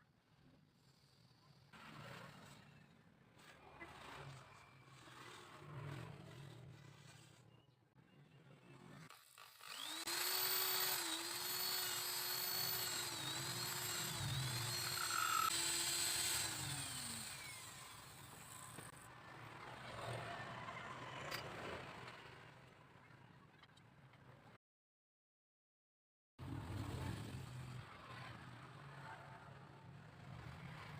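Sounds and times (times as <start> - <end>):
power tool motor running: 9.1 - 18.9.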